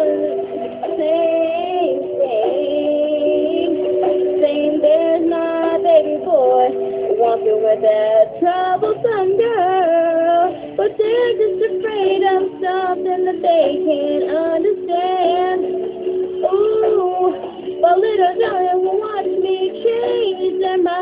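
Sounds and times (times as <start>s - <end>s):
instrumental backing: 0.0s - 21.0s
woman singing pop ballad: 0.0s - 21.0s.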